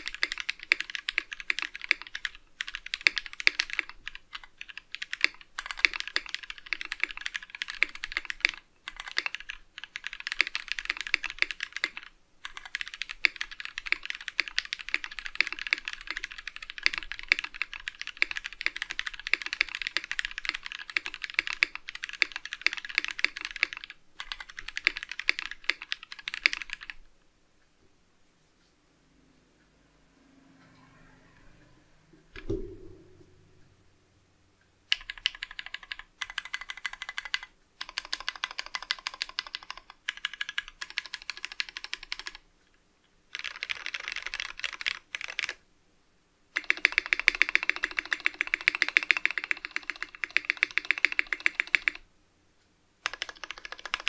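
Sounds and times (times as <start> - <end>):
fast typing on mechanical keyboard: 0.0 - 27.0, 34.9 - 42.4, 43.3 - 45.6, 46.6 - 52.0, 53.0 - 54.0.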